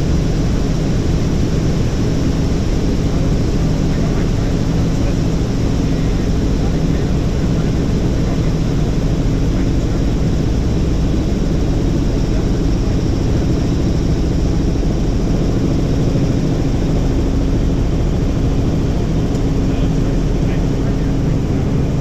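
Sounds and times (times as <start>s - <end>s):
helicopter rotor drone: 0.0s - 22.0s.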